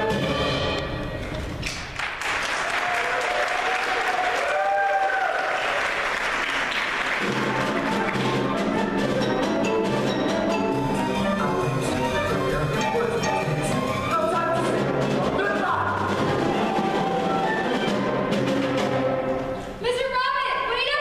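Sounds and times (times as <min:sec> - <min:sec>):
audience applause: 0:01.6 - 0:08.6
band music with steady pulse: 0:07.2 - 0:19.7.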